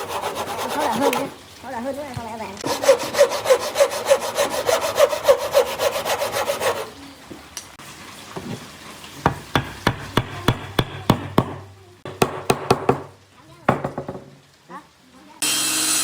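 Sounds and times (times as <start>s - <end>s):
hand saw cutting wood: 0.0s - 1.4s, 2.6s - 7.0s.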